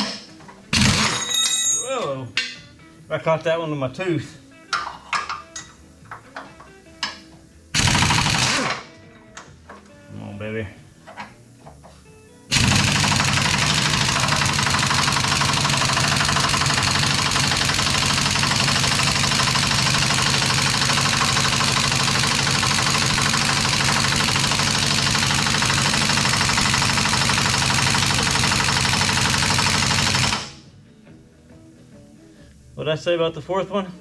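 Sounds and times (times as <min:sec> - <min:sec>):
impact wrench hammering: 0:00.0 - 0:01.8, 0:12.5 - 0:30.6.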